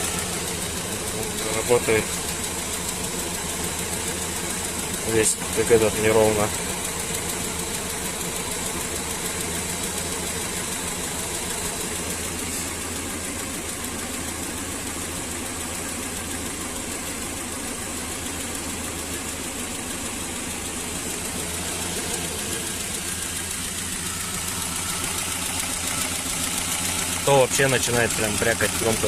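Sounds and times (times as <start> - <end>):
drumming engine knock: 0.0 - 16.6
van engine idling unevenly: 0.0 - 29.0.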